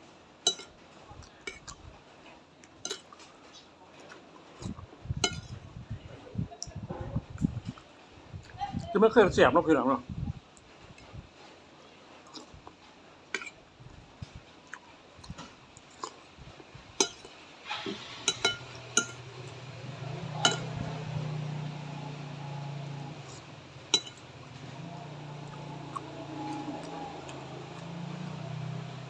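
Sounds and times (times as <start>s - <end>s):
spoon clinking against a bowl: 0.5s - 0.8s, 1.5s - 1.7s, 2.8s - 3.2s, 5.2s - 5.5s, 13.4s - 13.6s, 17.0s - 17.4s, 18.0s - 19.6s, 20.2s - 21.2s, 23.1s - 24.5s
chewing: 0.5s - 1.9s, 12.2s - 13.6s, 14.3s - 16.4s, 23.0s - 29.0s
low steady hum: 4.6s - 9.4s, 12.3s - 29.0s.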